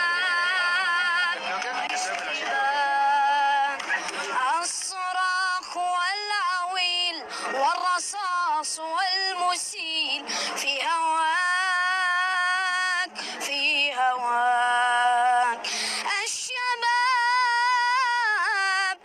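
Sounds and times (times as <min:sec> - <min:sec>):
high voice singing anthem: 0:00.0 - 0:06.5
singer breathing: 0:03.8 - 0:04.3, 0:07.2 - 0:07.6, 0:10.2 - 0:10.6, 0:13.1 - 0:13.4, 0:15.6 - 0:16.1.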